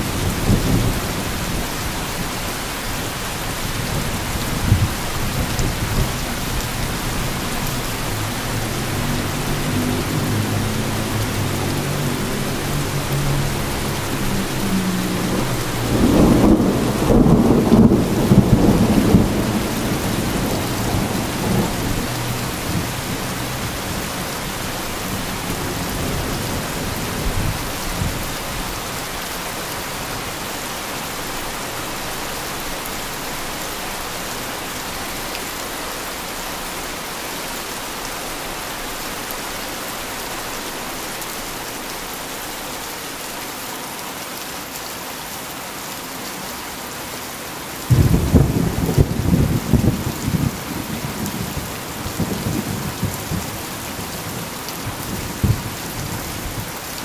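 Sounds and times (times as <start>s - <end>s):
heavy rain: 0.0s - 57.0s
thunder rumbling: 3.6s - 28.7s, 47.9s - 53.6s, 54.9s - 56.8s.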